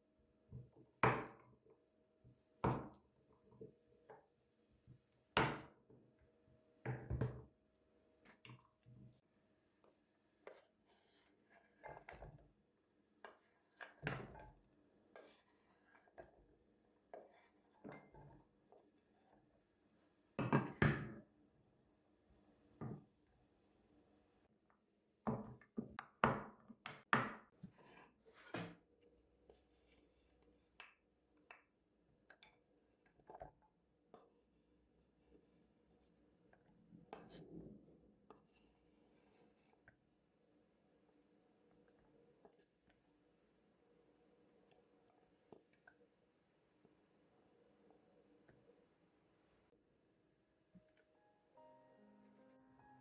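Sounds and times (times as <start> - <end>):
household objects knocking and clattering: 20.4 - 21.3, 25.2 - 27.6.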